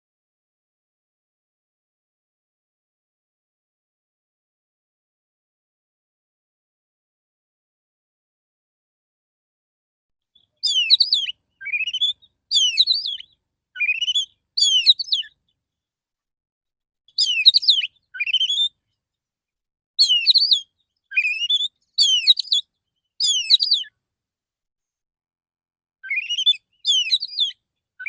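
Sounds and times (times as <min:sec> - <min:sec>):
songbird whistling song: 0:10.4 - 0:15.6, 0:17.1 - 0:18.9, 0:20.0 - 0:23.9, 0:26.0 - 0:27.6.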